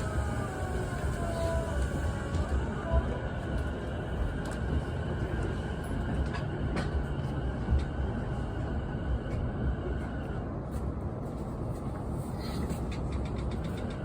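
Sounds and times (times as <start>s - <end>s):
train wheels rumbling on track: 0.0s - 14.0s
train clicks: 11.8s - 14.0s.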